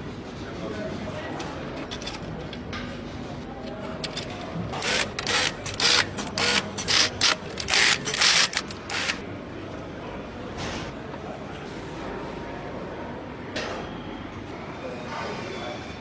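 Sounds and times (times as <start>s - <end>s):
workshop hum: 0.0s - 16.0s
power tool bursts: 4.8s - 9.2s.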